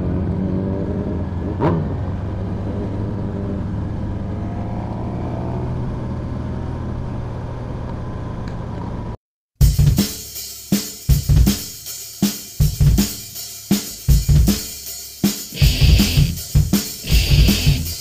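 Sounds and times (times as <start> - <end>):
motorcycle engine running: 15.6 - 18.0.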